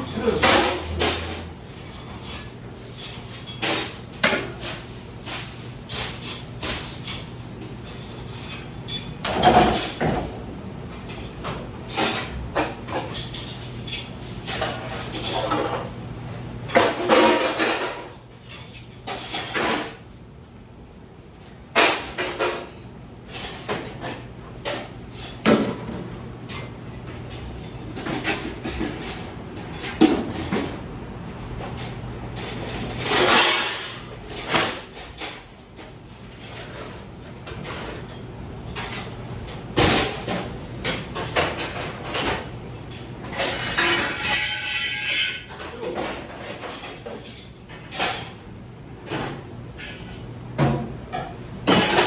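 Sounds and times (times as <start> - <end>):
low machine hum: 0.0 - 4.2
dishes and utensils clattering: 0.0 - 16.0, 16.6 - 20.2, 21.7 - 48.4, 49.0 - 52.0.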